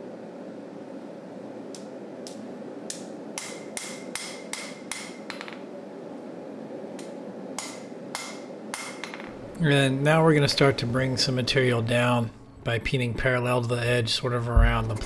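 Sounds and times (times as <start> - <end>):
hammer striking steel on an anvil: 2.9 - 5.6, 7.0 - 9.3.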